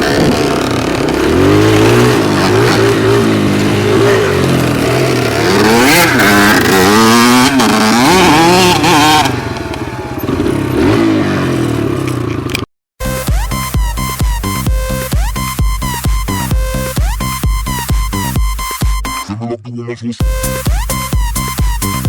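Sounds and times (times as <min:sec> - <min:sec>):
dirt bike engine revving: 0:00.0 - 0:19.1
electronic dance music: 0:13.0 - 0:19.3, 0:20.2 - 0:22.0.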